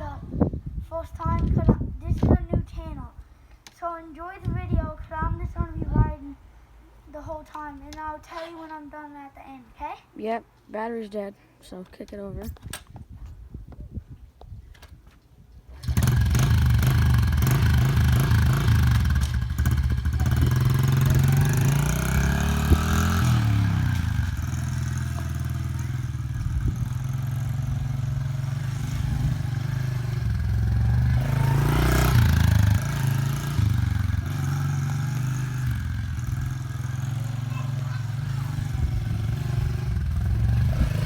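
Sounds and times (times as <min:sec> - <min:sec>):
dirt bike engine kick-started: 0:15.7 - 0:41.0
engine revving: 0:15.8 - 0:41.0.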